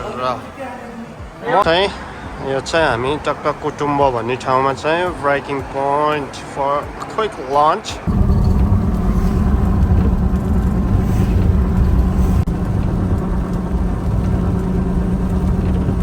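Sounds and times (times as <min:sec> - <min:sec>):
vehicle engine and road rumble: 0:08.1 - 0:16.0.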